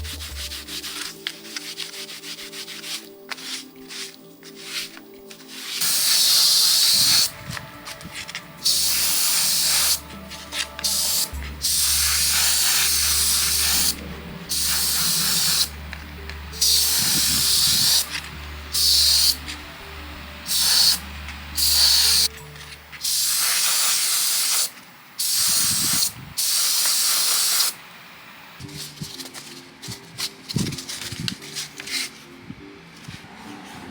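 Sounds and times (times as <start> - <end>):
spray bursts: 5.8 - 15.9, 16.5 - 19.6, 20.4 - 22.4, 23.0 - 27.8
low hum: 13.6 - 16.6.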